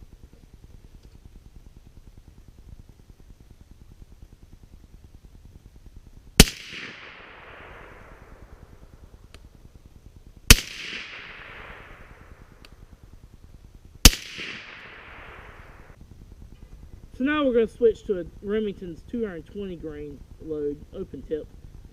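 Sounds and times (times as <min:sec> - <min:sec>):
gunshot echo: 0:06.4 - 0:08.8, 0:10.5 - 0:12.5, 0:14.0 - 0:16.0
suppressed rifle shots: 0:06.4 - 0:09.5, 0:10.5 - 0:12.8, 0:14.0 - 0:16.0.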